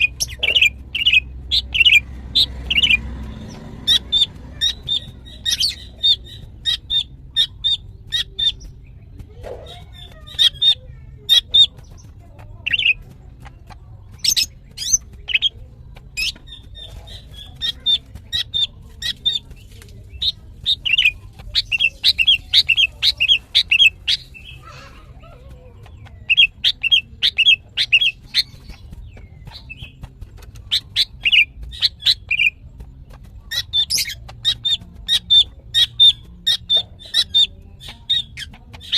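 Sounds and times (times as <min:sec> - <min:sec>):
bird chattering calls: 0:00.0 - 0:38.9.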